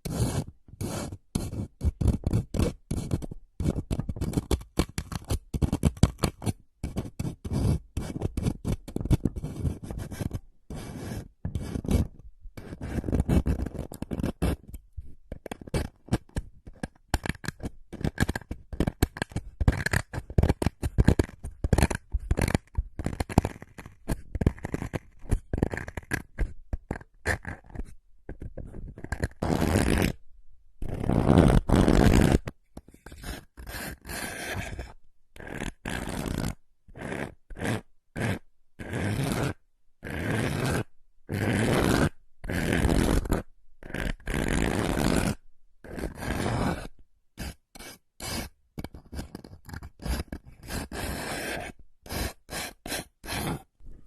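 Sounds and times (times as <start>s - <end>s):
rapid scratching and scraping: 47.4s - 53.7s.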